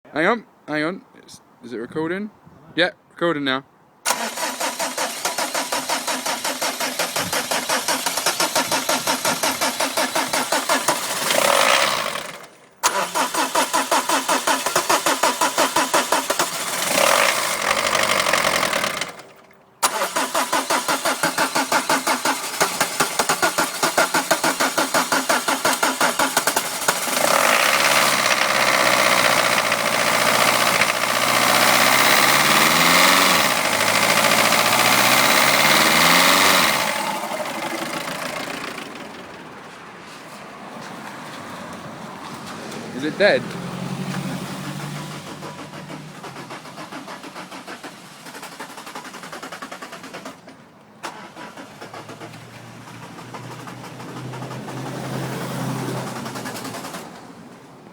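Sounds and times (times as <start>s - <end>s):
diesel engine cranking and starting: 4.0s - 57.9s.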